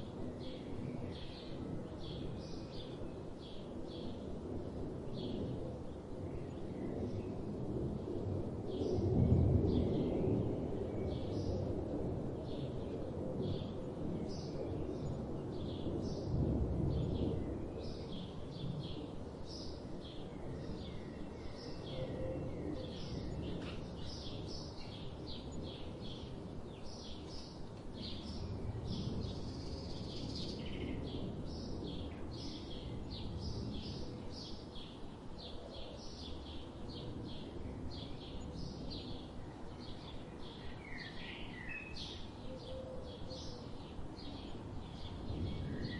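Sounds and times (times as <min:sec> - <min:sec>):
steady low background noise: 0:00.0 - 0:45.9.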